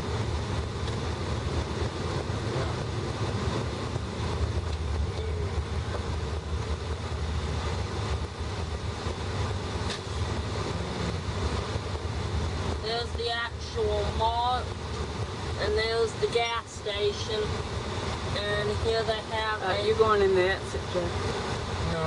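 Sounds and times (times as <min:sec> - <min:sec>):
low rumble in car cabin: 0:00.0 - 0:22.0.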